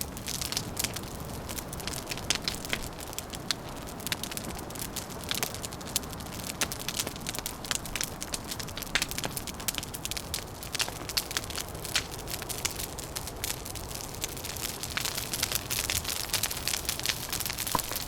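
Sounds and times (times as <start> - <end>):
fire crackling and popping: 0.0 - 18.0
low rushing fire: 0.0 - 18.0.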